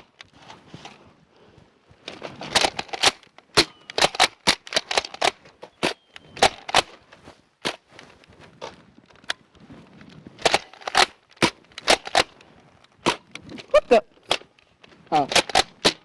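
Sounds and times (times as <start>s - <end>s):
toy blasters clacking and snapping: 2.5s - 7.0s, 10.4s - 12.4s, 13.0s - 13.6s, 14.2s - 16.0s.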